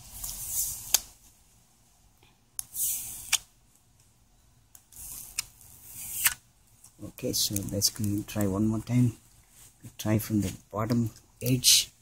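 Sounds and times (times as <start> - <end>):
high hissing scrape: 2.7 - 3.4, 5.0 - 6.4.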